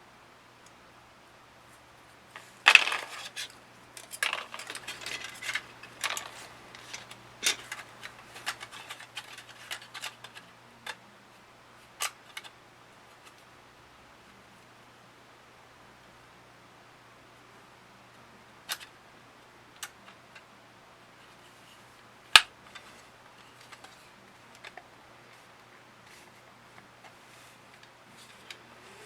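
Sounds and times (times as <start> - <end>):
faint steady hum: 0.0 - 29.0
plastic parts clicking and clattering: 2.4 - 11.0, 22.4 - 25.4.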